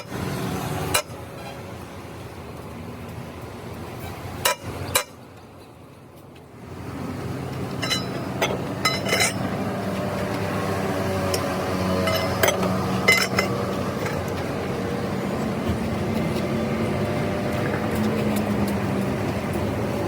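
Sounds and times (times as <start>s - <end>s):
metal tools clinking: 7.8s - 9.5s, 12.0s - 14.4s.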